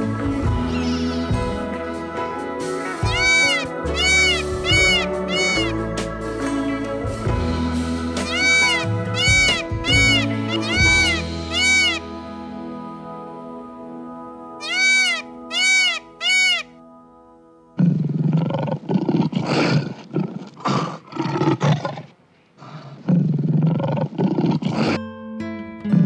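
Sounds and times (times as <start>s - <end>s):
soft music: 0.0s - 18.7s, 24.8s - 26.0s
peacock calls: 3.0s - 5.8s, 8.2s - 12.1s, 14.6s - 16.8s
lion growling and roaring: 17.8s - 25.0s.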